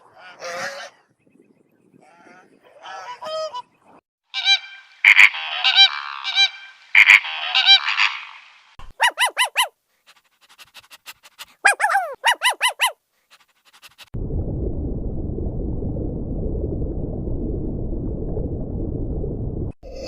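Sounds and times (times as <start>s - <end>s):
bird calls: 0.3s - 9.7s
low rushing noise: 14.2s - 19.8s.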